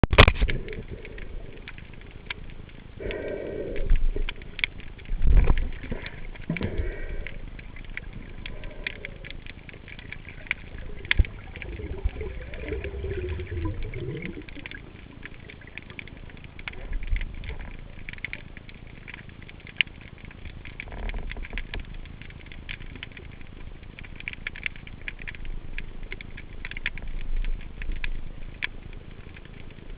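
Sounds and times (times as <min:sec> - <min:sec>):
sharp clicks and crackles: 0:00.0 - 0:29.9
water swishes: 0:00.1 - 0:29.9
underwater hiss: 0:03.0 - 0:04.5, 0:05.8 - 0:09.5.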